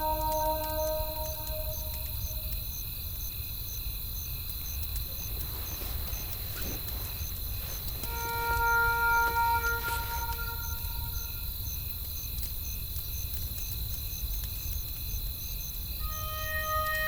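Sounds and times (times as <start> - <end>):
soft music notes: 0.0 - 2.5, 8.0 - 11.4, 16.0 - 17.0
low wind rumble: 0.0 - 4.2, 5.1 - 12.2
cricket chirping: 0.0 - 17.0
high insect trill: 0.0 - 17.0.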